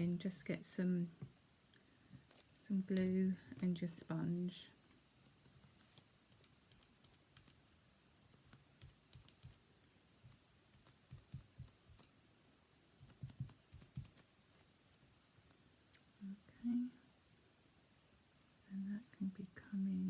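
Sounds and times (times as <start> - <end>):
sponge tapping on paper: 10.8 - 12.0, 13.0 - 14.2.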